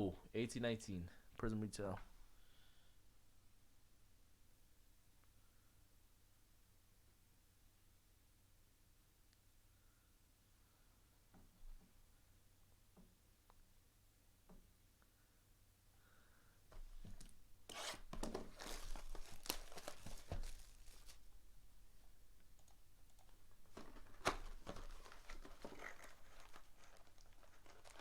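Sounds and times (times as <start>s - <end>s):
foil wrappers tearing and crinkling: 17.7s - 21.3s, 23.8s - 28.0s.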